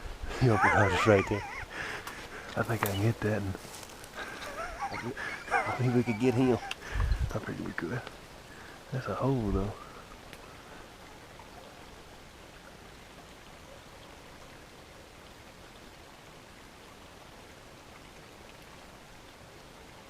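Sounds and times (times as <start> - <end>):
woodland background hiss: 0.0 - 20.0
faint ticks: 8.0 - 8.2, 10.2 - 10.5.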